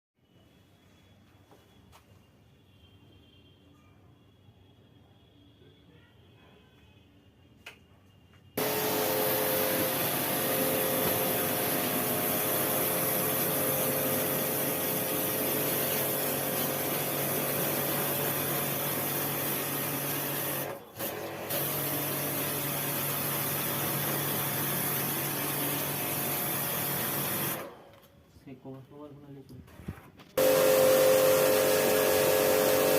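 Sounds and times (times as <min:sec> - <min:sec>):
machine motor hissing and humming: 0:08.6 - 0:27.7.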